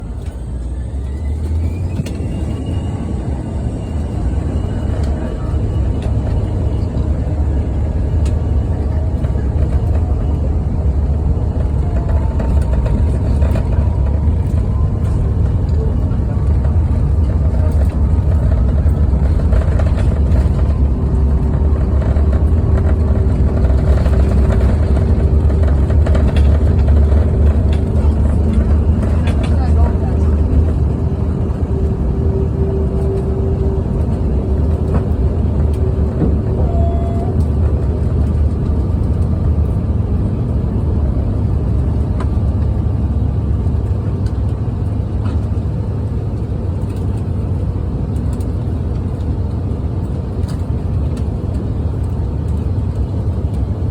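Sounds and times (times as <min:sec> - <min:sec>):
jet engines spooling up: 0:00.0 - 0:40.5.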